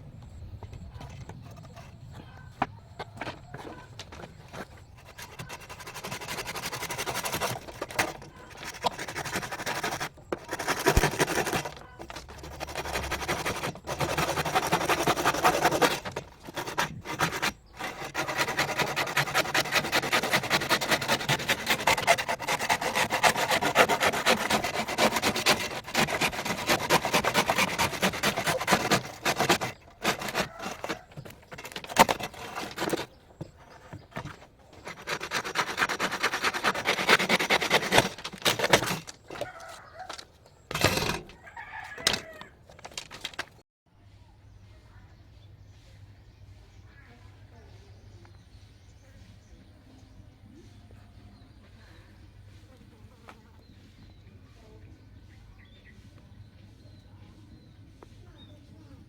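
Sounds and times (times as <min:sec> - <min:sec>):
rapid rasping scraping: 0:00.8 - 0:43.6.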